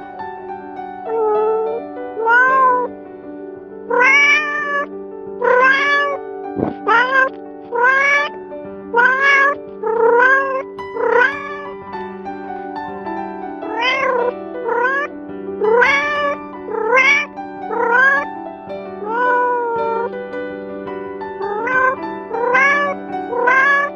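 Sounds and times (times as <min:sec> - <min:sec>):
soft background music: 0:00.0 - 0:23.9
kitten meowing: 0:01.1 - 0:02.9, 0:03.9 - 0:11.8, 0:13.6 - 0:18.3, 0:19.0 - 0:20.1, 0:21.4 - 0:23.9.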